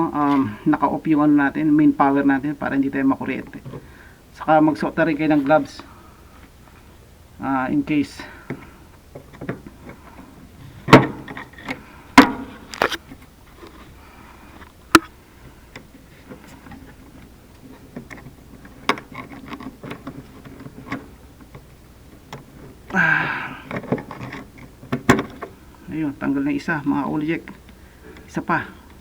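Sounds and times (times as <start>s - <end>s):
handling rustle: 8.4s - 23.0s.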